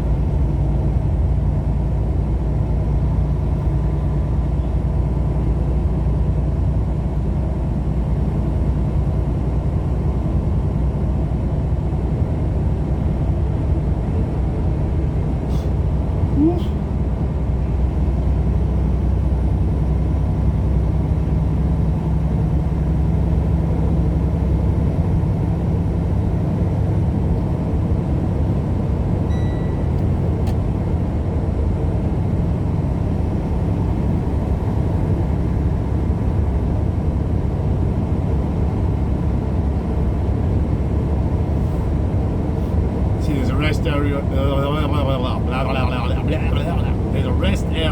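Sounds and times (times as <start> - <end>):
road and engine drone in car: 0.0 - 47.9
short high beep: 29.3 - 30.0.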